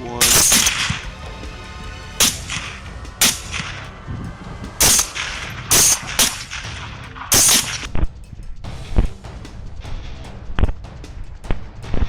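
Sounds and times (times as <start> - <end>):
rifle shots echoing: 0.2 - 1.1, 2.2 - 3.8, 4.8 - 7.9.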